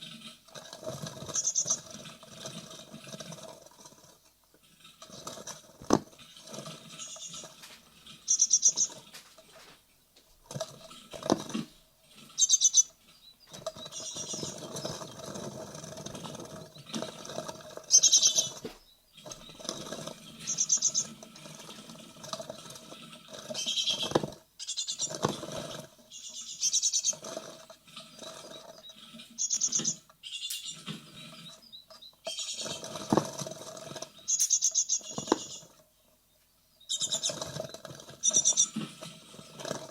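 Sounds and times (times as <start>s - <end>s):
bird nestlings calling: 1.2s - 1.9s, 7.0s - 7.6s, 8.2s - 9.0s, 12.3s - 15.3s, 17.9s - 21.1s, 23.6s - 25.2s, 26.1s - 27.2s, 28.1s - 33.0s, 34.2s - 35.7s.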